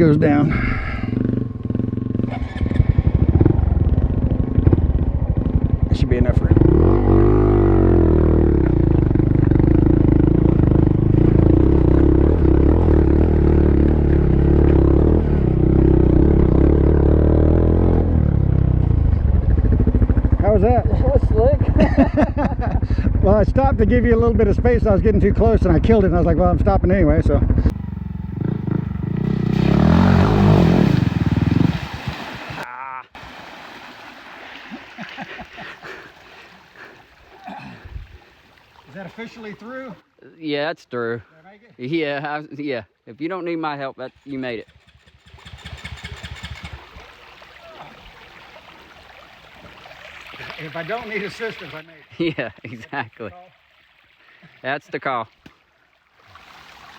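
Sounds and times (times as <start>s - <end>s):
motorcycle engine idling: 0.7s - 6.4s, 18.5s - 22.1s, 26.9s - 30.0s, 44.4s - 46.9s
small motorcycle engine: 1.1s - 21.8s, 27.5s - 31.7s, 44.5s - 47.0s.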